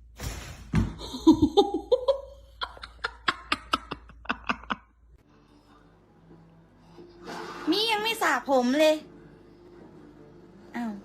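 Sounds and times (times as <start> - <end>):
person laughing: 1.0 - 5.0.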